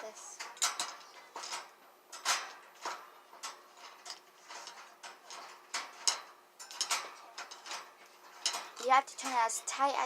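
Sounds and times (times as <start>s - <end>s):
metal clicks against wire cage: 0.0s - 10.0s.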